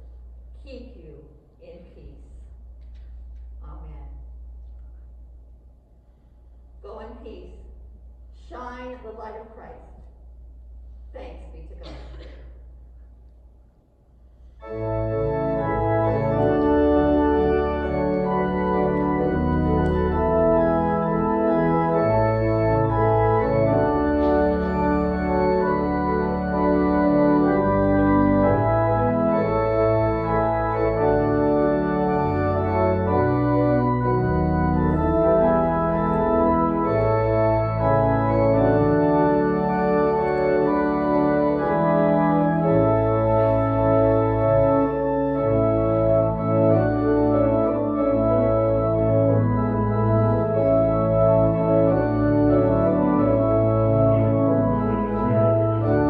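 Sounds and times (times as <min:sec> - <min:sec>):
church organ playing chords: 0:14.3 - 0:56.0.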